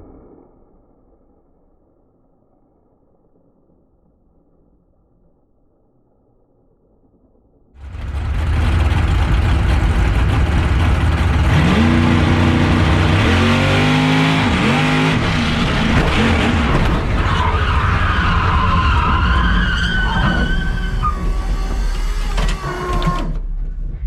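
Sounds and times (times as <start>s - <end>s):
truck engine at full throttle: 7.8s - 18.4s
high whine: 7.8s - 24.0s.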